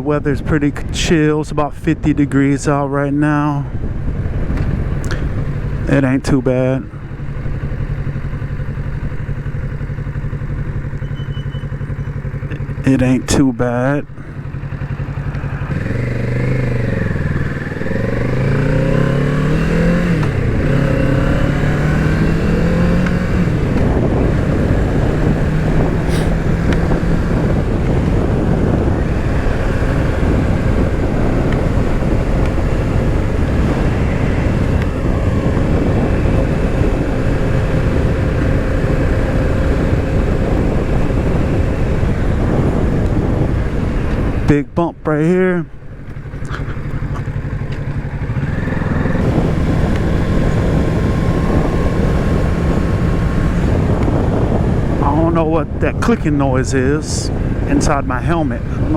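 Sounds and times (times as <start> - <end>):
wind noise on microphone: 0.0 - 10.4, 11.1 - 58.9
motorcycle engine accelerating: 1.9 - 58.9.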